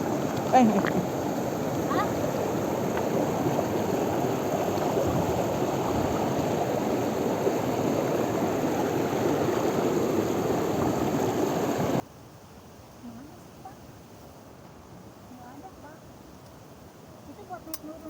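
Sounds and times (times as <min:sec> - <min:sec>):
water rushing over waterfall: 0:00.0 - 0:12.0.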